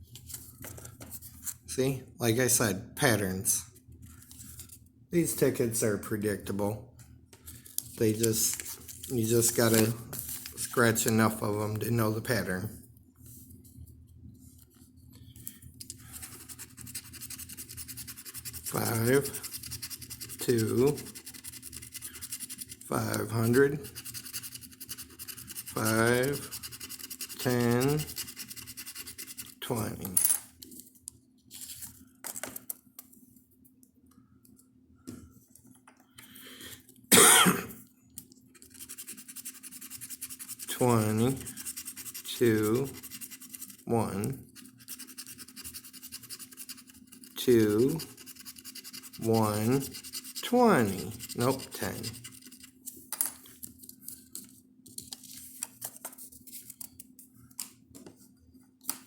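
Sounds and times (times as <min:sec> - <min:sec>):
faint steady hum: 0:00.0 - 0:59.0
paper tickets rustling and tapping: 0:07.8 - 0:11.4, 0:50.9 - 0:58.2
scratch-off tickets being scratched: 0:08.0 - 0:12.6, 0:16.0 - 0:30.0, 0:38.5 - 0:52.9
short cough: 0:37.1 - 0:37.8.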